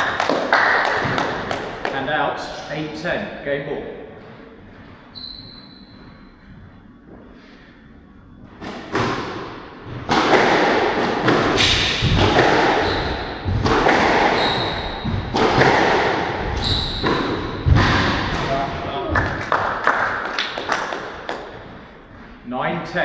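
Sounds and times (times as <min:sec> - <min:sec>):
squash ball hits: 0:00.0 - 0:02.0, 0:08.6 - 0:21.6
shoe squeaks on court floor: 0:05.1 - 0:06.4, 0:14.2 - 0:15.2, 0:16.6 - 0:17.6.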